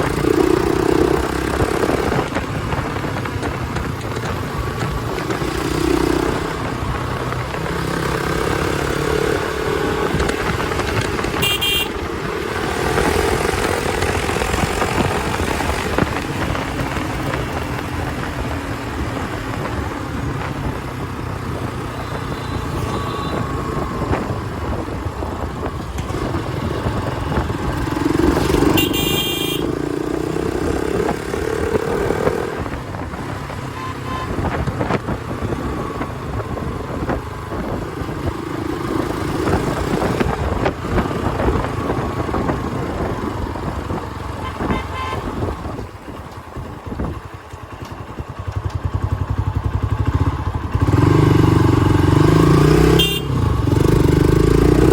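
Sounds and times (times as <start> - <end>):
motorcycle engine: 0.0 - 54.9
vehicle horns honking: 11.3 - 12.2, 22.0 - 23.8, 28.6 - 29.8, 33.7 - 34.5, 44.4 - 45.5, 52.9 - 53.5.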